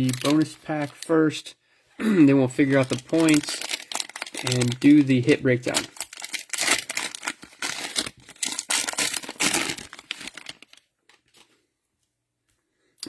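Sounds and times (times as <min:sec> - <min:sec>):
card pack wrapper crinkling and tearing: 0:00.0 - 0:01.2, 0:02.5 - 0:11.5.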